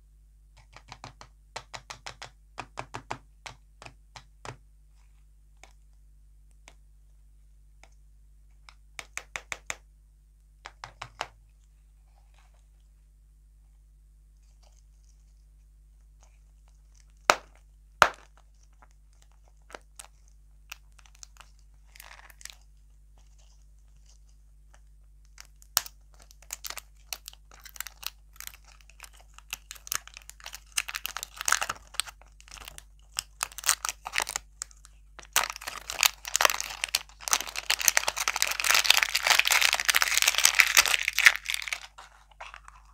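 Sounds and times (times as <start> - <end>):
plastic wrapper crinkling: 16.2 - 42.9.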